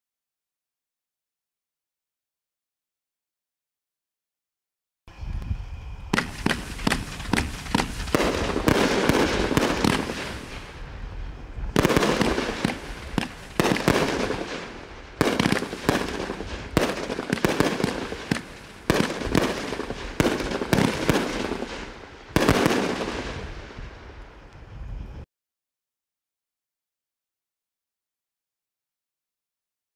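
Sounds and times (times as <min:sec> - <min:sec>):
fireworks shots: 0:06.1 - 0:24.4
fireworks crackling: 0:06.1 - 0:24.7.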